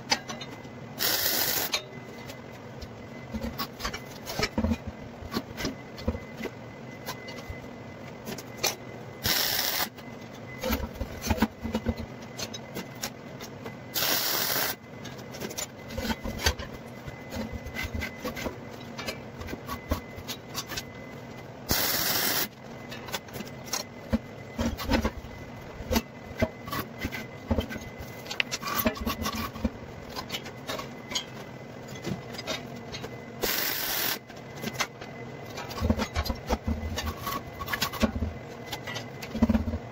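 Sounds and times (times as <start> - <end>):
electric arc welding bursts: 1.0 - 1.7, 9.2 - 9.9, 14.0 - 14.8, 21.7 - 22.5, 33.4 - 34.2.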